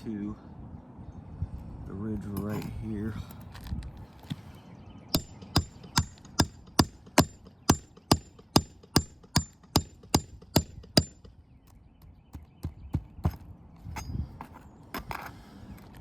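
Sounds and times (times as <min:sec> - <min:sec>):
hammer blows on roof: 0:05.2 - 0:11.4.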